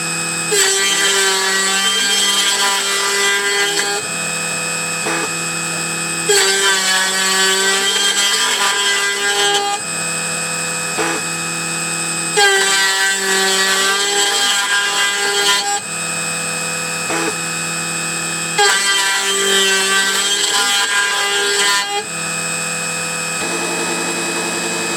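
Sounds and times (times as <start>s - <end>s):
milling spindle whine: 23.2s - 24.9s.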